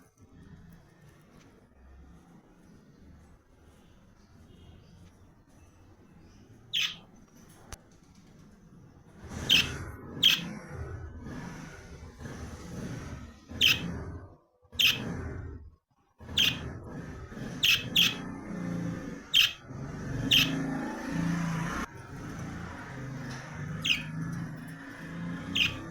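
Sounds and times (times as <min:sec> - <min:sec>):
bird chirping: 0:04.6 - 0:07.2, 0:09.5 - 0:10.5, 0:13.5 - 0:13.9, 0:14.8 - 0:15.1, 0:16.2 - 0:16.7, 0:17.5 - 0:18.4, 0:19.2 - 0:20.8, 0:23.3 - 0:25.9.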